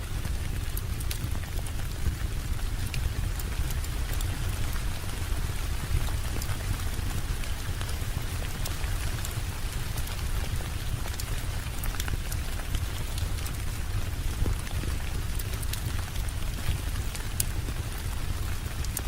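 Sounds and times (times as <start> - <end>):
steady rainfall: 0.0 - 19.0.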